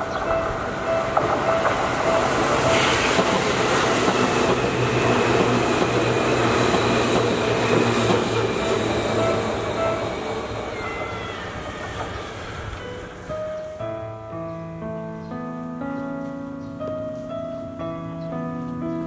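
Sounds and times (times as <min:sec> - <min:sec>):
level crossing warning bell: 0:00.0 - 0:06.5
electric train passing: 0:00.0 - 0:14.4.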